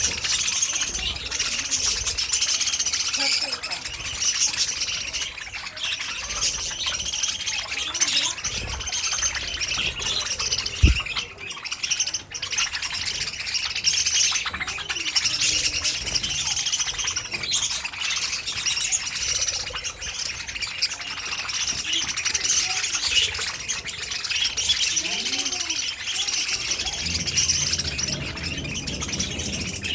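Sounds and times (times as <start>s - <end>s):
budgerigars chirping and warbling: 0.0s - 29.9s
short low thump: 10.8s - 11.1s.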